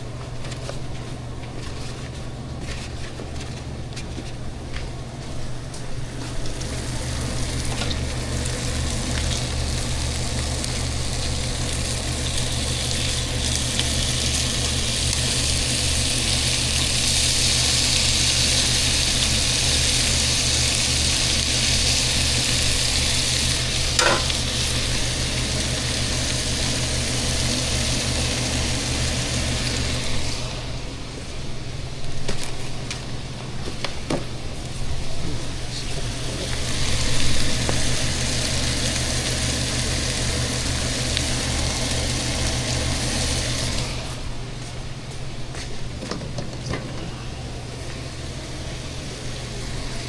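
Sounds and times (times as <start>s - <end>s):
steady low hum: 0.0s - 50.0s
food sizzling in a pan: 6.6s - 30.3s, 35.9s - 43.8s.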